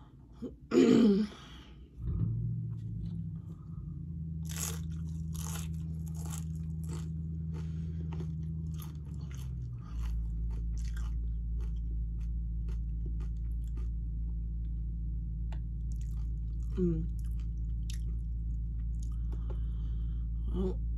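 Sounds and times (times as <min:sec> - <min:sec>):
steady low hum: 0:00.0 - 0:20.9
chips crunching while chewed: 0:04.4 - 0:14.0, 0:15.8 - 0:19.6.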